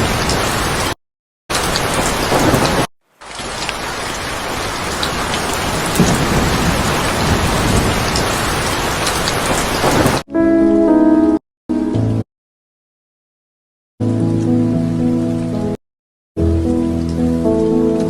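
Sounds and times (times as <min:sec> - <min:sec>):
heavy rain pouring: 0:00.0 - 0:10.2.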